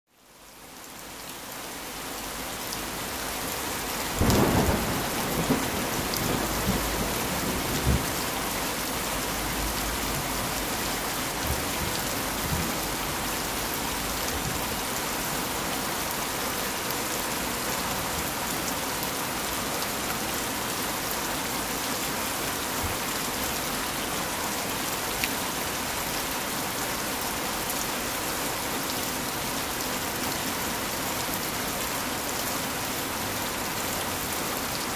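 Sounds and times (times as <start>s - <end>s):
heavy rain falling: 0.1s - 34.9s
thunderclap and rumbling thunder: 4.2s - 8.3s.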